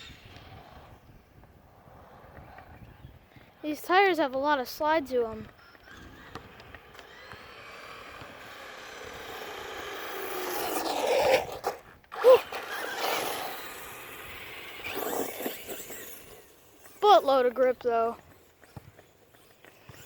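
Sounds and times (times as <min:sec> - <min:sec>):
tyre noise: 0:05.3 - 0:20.0
electric motor whining: 0:05.4 - 0:18.7.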